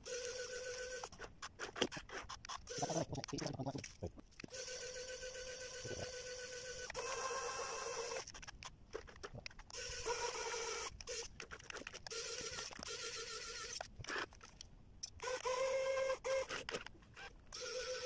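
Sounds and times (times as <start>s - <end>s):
small electric gear motor whining: 0.0s - 1.3s, 1.9s - 3.5s, 4.4s - 8.5s, 9.6s - 14.3s, 15.2s - 18.0s
light clicks and scrapes: 10.9s - 12.9s.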